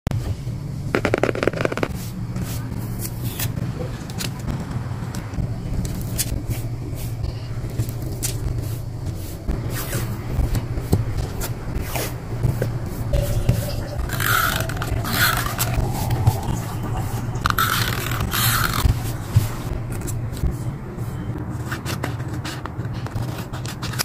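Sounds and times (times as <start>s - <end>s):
steady low hum: 0.1s - 23.3s
paper rustling and scraping: 17.5s - 24.0s.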